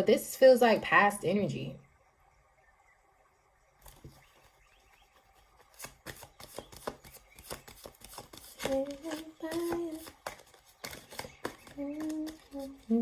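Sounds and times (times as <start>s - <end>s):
cards being shuffled: 5.6s - 13.0s.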